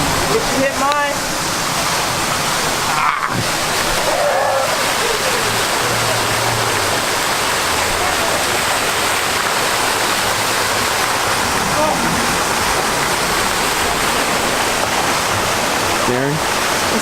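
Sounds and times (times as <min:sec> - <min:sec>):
rush of falling water: 0:00.0 - 0:17.0
faint voices: 0:02.8 - 0:07.1.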